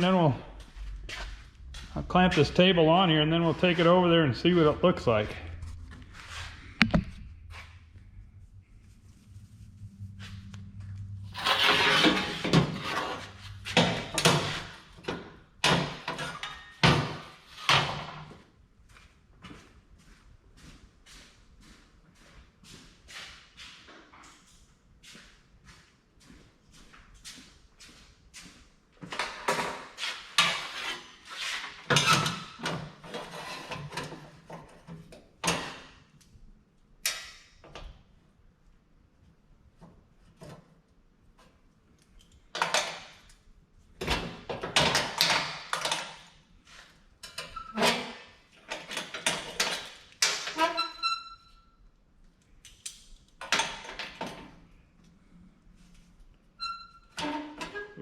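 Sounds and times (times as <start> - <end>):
low steady hum: 0.0 - 11.8
metal scraping: 1.1 - 14.9
metal clanks and scrapes: 11.2 - 18.1, 29.2 - 34.8.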